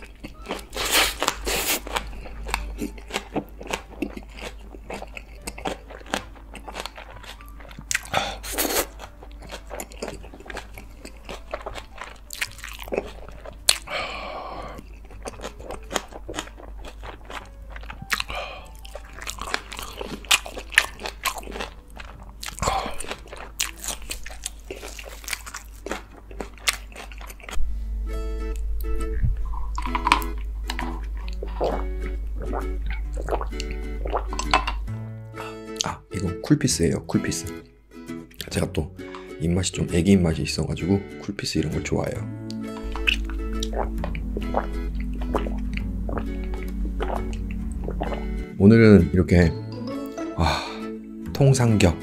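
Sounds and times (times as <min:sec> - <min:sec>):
wet mouth clicks and crunches: 0:00.0 - 0:13.9, 0:14.6 - 0:27.6, 0:29.4 - 0:34.8, 0:42.5 - 0:48.4
person chewing food: 0:00.0 - 0:27.6, 0:28.4 - 0:36.1, 0:42.4 - 0:48.6.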